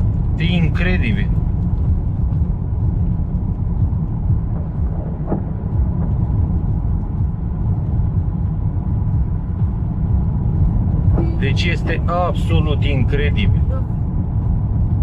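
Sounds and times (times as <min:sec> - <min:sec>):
wind buffeting microphone: 0:01.2 - 0:12.1.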